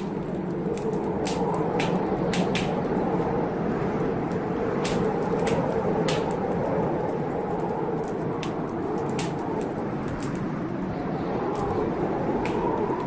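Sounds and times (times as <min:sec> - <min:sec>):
sharp snaps: 0:00.0 - 0:02.9, 0:04.8 - 0:06.4
rushing storm noise: 0:00.0 - 0:13.0
wood fire crackling: 0:00.0 - 0:13.0.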